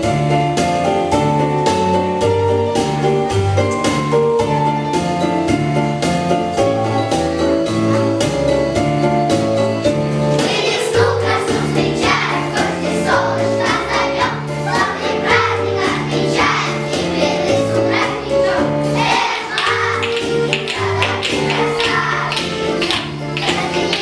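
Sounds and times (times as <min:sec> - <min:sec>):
children's choir singing: 0:10.3 - 0:24.0
music with steady beat: 0:18.7 - 0:24.0.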